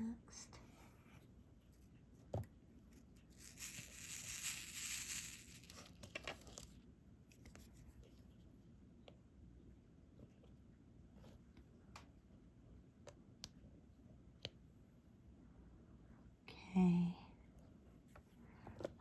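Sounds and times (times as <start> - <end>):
plastic crinkling and rustling: 3.3 - 6.8.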